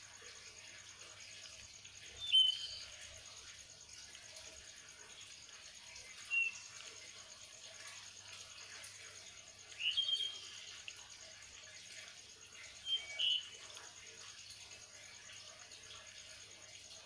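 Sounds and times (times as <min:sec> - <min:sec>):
faint steady hiss: 0:00.0 - 0:17.0
small bird chirping: 0:02.1 - 0:03.0, 0:06.0 - 0:06.8, 0:09.7 - 0:10.9, 0:12.5 - 0:13.6.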